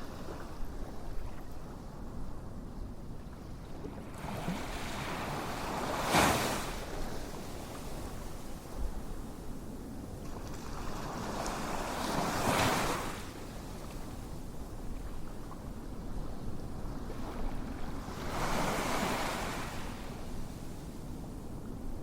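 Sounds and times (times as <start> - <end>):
waves washing in: 4.0 - 8.4, 17.1 - 20.5.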